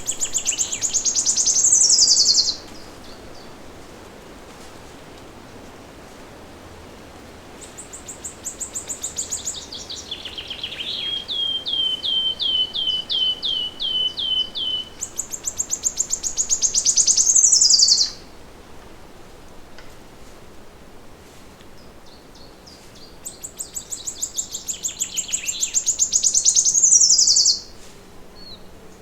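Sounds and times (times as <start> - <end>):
songbird singing trills: 0.0 - 3.6, 7.7 - 18.2, 22.0 - 27.8
steady background hiss: 0.0 - 29.0.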